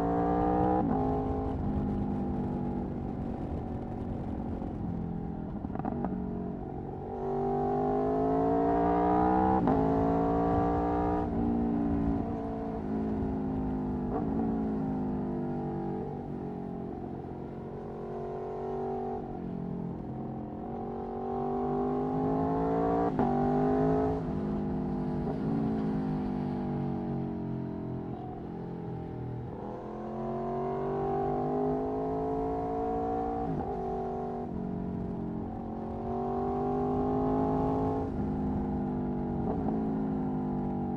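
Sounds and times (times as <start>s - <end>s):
motorcycle engine accelerating hard: 0.0s - 28.3s, 29.4s - 40.9s.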